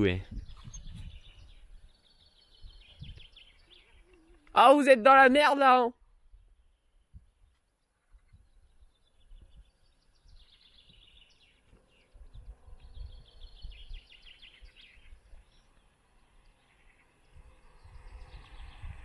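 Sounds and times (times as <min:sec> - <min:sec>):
wind on the microphone: 0:00.0 - 0:04.0, 0:06.0 - 0:07.5, 0:08.1 - 0:15.6, 0:17.2 - 0:19.0
songbird singing quick notes: 0:08.2 - 0:19.0.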